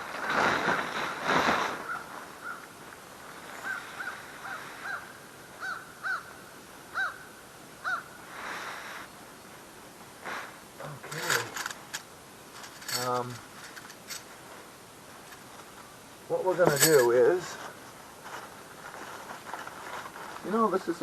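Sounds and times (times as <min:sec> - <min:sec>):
tent fabric rustling: 0:00.0 - 0:05.0, 0:10.2 - 0:21.0
bird calling: 0:03.5 - 0:08.2.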